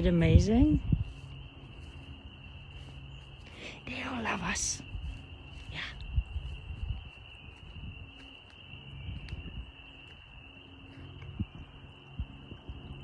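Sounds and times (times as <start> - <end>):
low rumbling microphone noise: 0.0 - 13.0.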